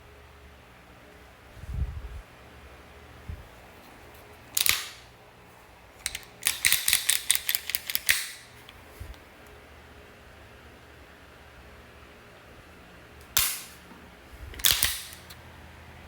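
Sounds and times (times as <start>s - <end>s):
pistol clicking and clacking: 4.5s - 5.1s, 6.0s - 8.8s, 13.4s - 13.8s, 14.6s - 15.4s.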